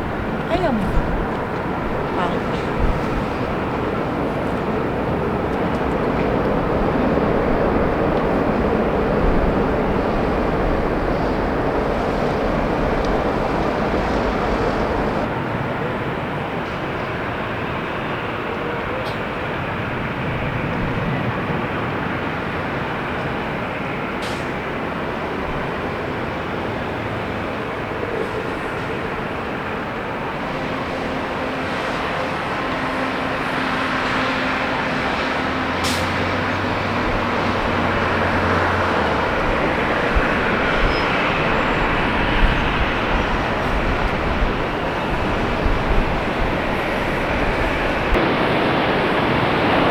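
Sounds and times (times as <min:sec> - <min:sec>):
jet engines roaring: 0:25.7 - 0:49.9.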